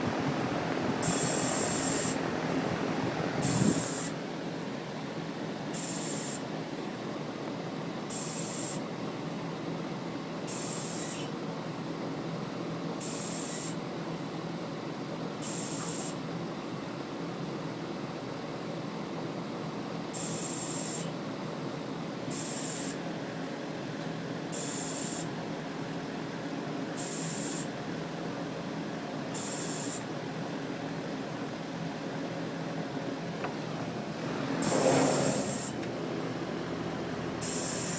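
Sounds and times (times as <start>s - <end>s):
compressor humming: 0.0s - 4.2s, 33.0s - 37.9s
short hissing rasp: 34.6s - 35.8s.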